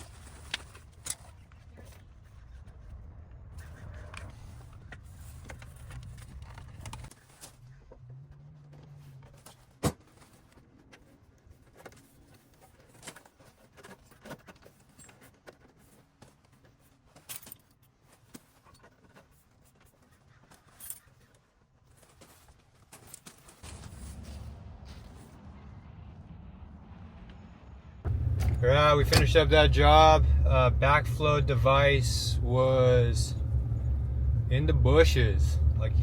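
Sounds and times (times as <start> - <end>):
low rumble: 23.7 - 36.0.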